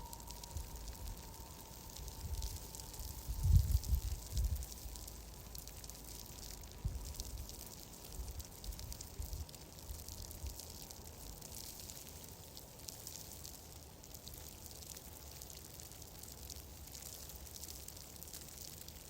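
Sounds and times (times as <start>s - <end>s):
low rumble: 0.0s - 5.6s
fine crackles and ticks: 0.0s - 19.0s.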